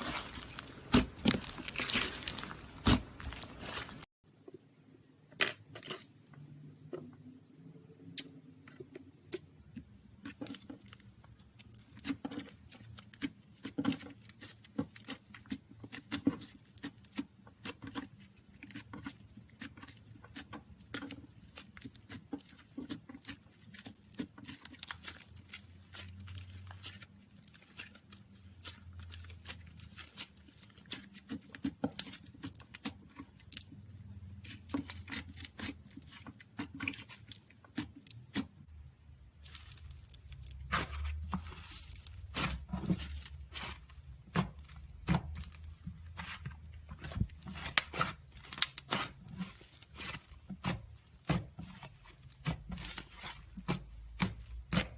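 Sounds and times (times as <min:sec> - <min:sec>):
slime squished by hand: 0:00.0 - 0:04.0.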